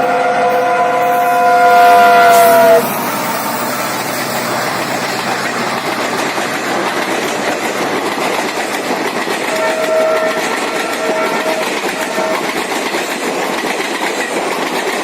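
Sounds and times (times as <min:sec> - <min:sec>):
faint train horn: 0:00.0 - 0:04.7, 0:09.5 - 0:12.6
train wheels rushing on rails: 0:00.0 - 0:15.0.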